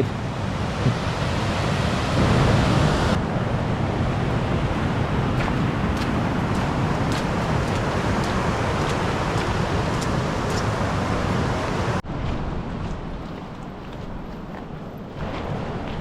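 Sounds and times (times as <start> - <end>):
river rushing over waterfalls: 0.0 - 12.0.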